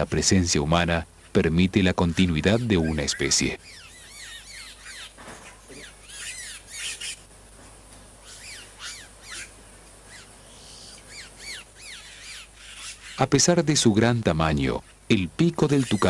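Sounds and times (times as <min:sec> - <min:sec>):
birds whistling: 0:01.9 - 0:07.3, 0:08.2 - 0:13.6, 0:15.5 - 0:16.0.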